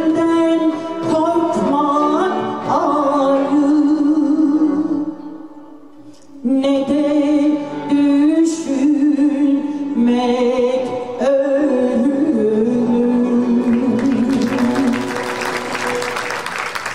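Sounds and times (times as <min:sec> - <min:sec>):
woman singing folk song: 0:00.0 - 0:05.3, 0:06.4 - 0:15.0
instrumental accompaniment: 0:11.6 - 0:16.9
audience applause: 0:14.0 - 0:16.9.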